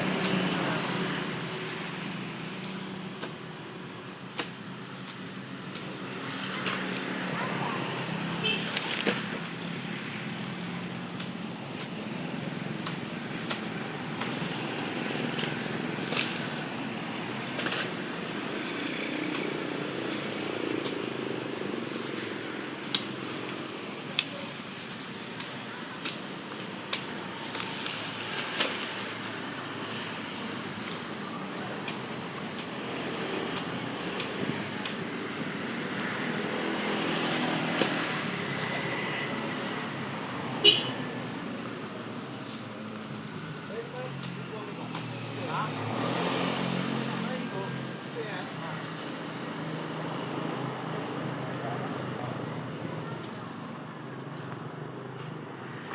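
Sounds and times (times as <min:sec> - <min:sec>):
sugarcane chopping by hand: 0:00.0 - 0:03.7, 0:04.3 - 0:07.3, 0:11.1 - 0:29.5, 0:30.2 - 0:35.5, 0:37.6 - 0:38.9.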